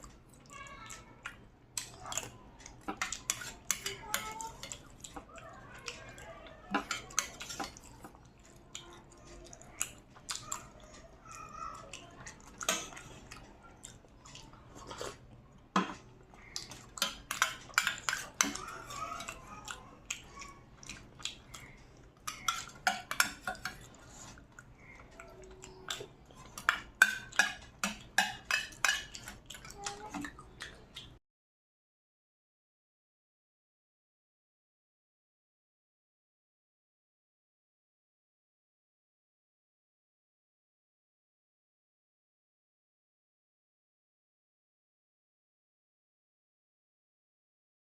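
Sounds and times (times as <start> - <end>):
cutlery clinking on dishes: 1.8 - 5.3, 6.6 - 8.1, 12.5 - 13.3, 15.8 - 19.4, 22.2 - 24.4, 25.8 - 30.3.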